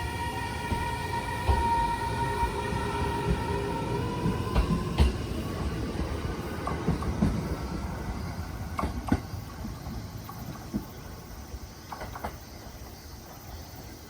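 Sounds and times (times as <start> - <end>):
train motor whine: 0.0 - 10.4
wheels clacking over rail joints: 0.0 - 12.8
train rumbling on rails: 0.0 - 14.0.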